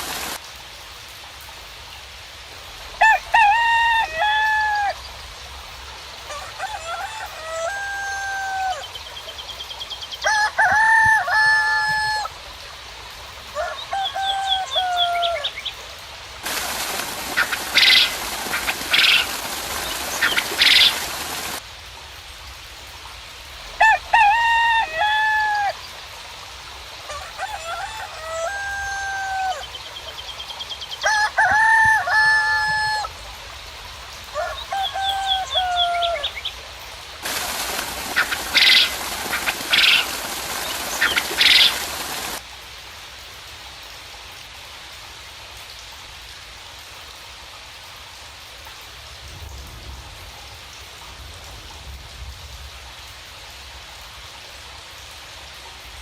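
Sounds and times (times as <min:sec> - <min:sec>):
hissing rushing noise: 0:00.0 - 0:00.4, 0:16.4 - 0:21.6, 0:37.2 - 0:42.4
roosters crowing: 0:03.0 - 0:05.0, 0:06.3 - 0:08.9, 0:10.2 - 0:12.3, 0:13.5 - 0:15.6, 0:16.4 - 0:21.6, 0:23.8 - 0:25.8, 0:27.1 - 0:29.7, 0:31.0 - 0:33.2, 0:34.3 - 0:36.4, 0:37.2 - 0:42.4
small birds chirping: 0:16.5 - 0:21.6, 0:37.3 - 0:42.4.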